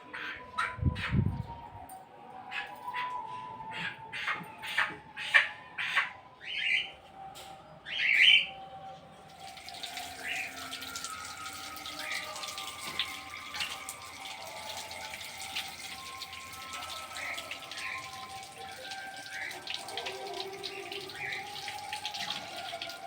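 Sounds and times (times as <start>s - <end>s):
water running: 9.2s - 23.0s.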